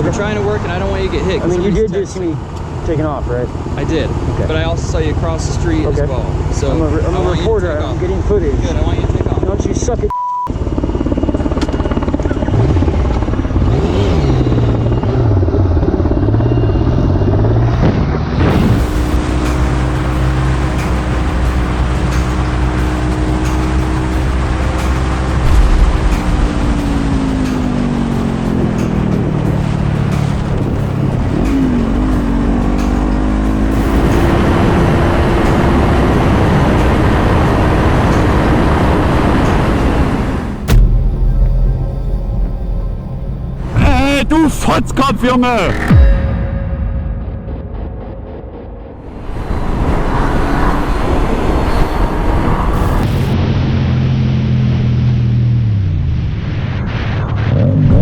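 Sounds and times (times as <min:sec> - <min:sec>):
road and wind noise: 0:00.0 - 0:46.7, 0:48.5 - 0:58.0
censor bleep: 0:10.1 - 0:10.5, 0:16.3 - 0:17.6
motorcycle engine pulling away: 0:10.6 - 0:40.7.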